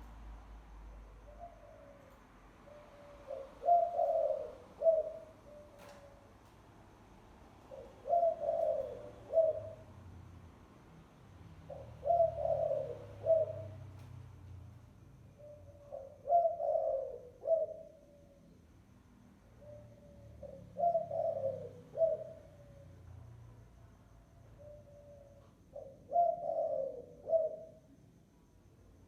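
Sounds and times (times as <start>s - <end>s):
dove cooing: 0.9s - 6.4s, 7.6s - 10.0s, 11.6s - 14.0s, 15.3s - 18.4s, 19.6s - 23.0s, 24.6s - 27.9s.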